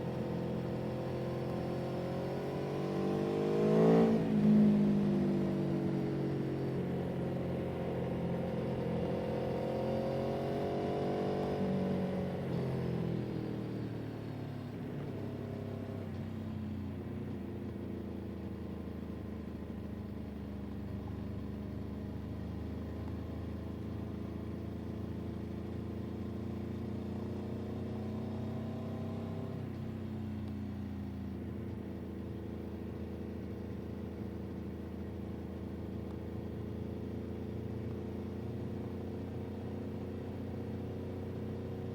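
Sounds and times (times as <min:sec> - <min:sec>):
vehicle engine revving: 0:01.2 - 0:04.4.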